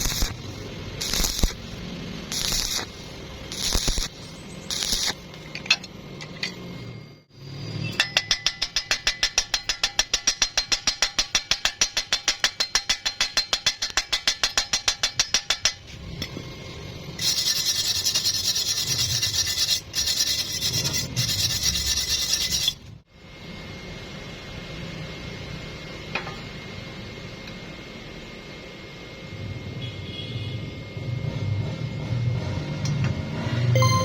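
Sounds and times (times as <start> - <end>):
welding arc hiss: 0.0 - 5.5, 15.8 - 22.9
welding arc pulsing: 0.0 - 5.5, 16.6 - 22.9.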